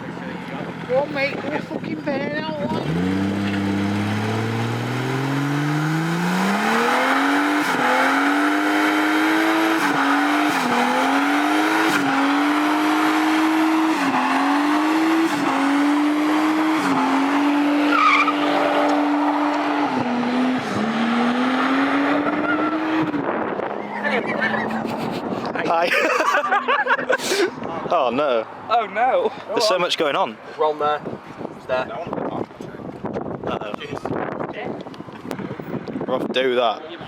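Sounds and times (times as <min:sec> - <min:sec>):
car engine revving: 0:02.6 - 0:25.3
tyres screeching: 0:09.8 - 0:20.2.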